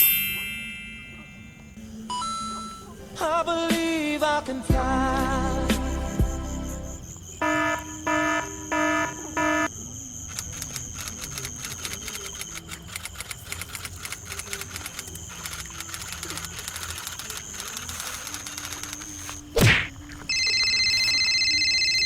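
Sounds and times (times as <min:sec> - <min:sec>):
alarm clock beeps: 0:00.0 - 0:03.2, 0:05.2 - 0:13.3, 0:20.3 - 0:22.0
steady high tone: 0:00.0 - 0:10.1, 0:20.3 - 0:22.0.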